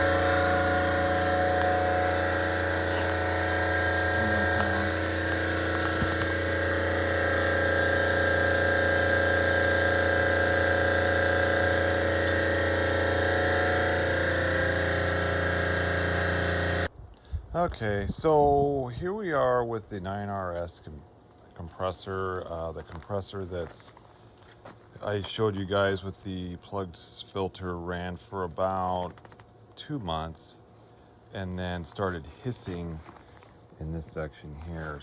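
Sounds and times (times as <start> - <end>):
refrigeration compressor humming: 0.0 - 16.9.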